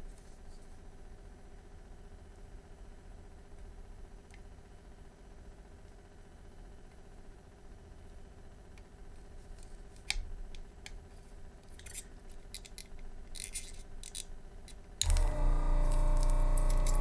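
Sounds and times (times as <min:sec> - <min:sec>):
vacuum pump humming: 0:15.0 - 0:17.0.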